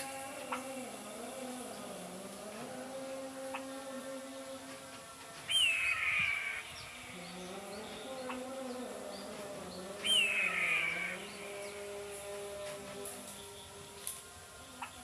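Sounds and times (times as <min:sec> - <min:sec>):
eagle screaming: 0:05.5 - 0:06.9, 0:10.0 - 0:11.3.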